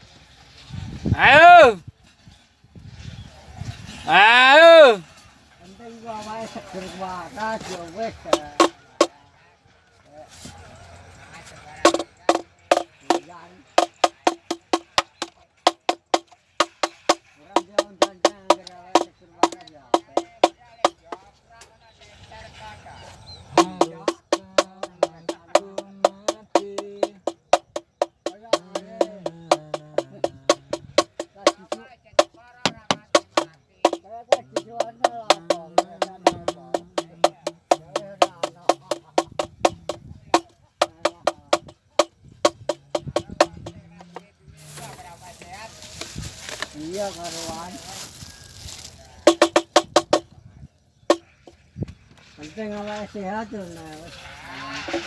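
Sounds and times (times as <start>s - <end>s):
person singing or calling: 1.2s - 1.8s, 4.1s - 5.0s, 23.6s - 40.0s, 42.5s - 44.8s
hollow knocker struck: 8.4s - 9.1s, 11.9s - 21.2s, 23.5s - 44.2s, 49.2s - 50.3s.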